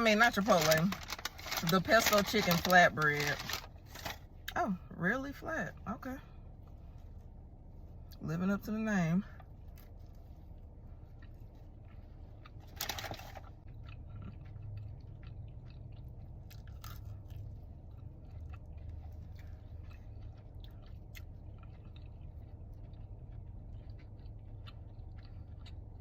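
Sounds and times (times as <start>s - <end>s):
chewing with small clicks: 9.4s - 12.8s, 13.4s - 26.0s
crunchy bite of flatbread: 15.6s - 26.0s.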